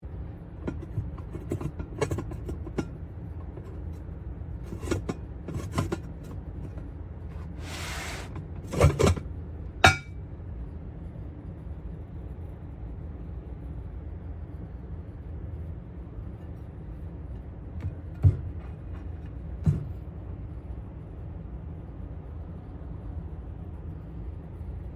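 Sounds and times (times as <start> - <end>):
bowl scraping: 0.6 - 4.0, 4.7 - 9.2, 9.8 - 10.1
ceramic bowls clinking: 9.8 - 10.1
ceramic bowls knocking: 9.8 - 10.1.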